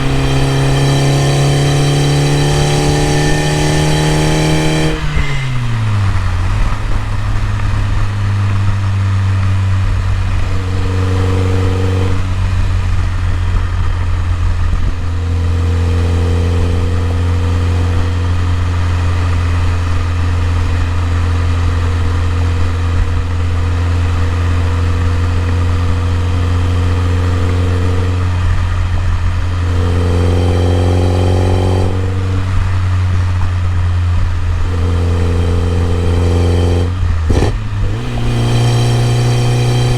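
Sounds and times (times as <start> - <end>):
car engine idling: 5.0 - 29.8.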